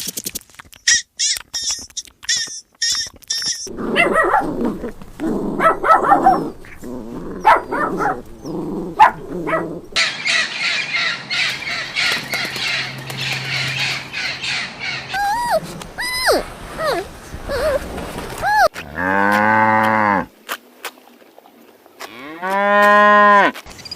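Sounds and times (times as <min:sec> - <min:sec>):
dog barking: 0:03.8 - 0:04.9, 0:05.5 - 0:10.0.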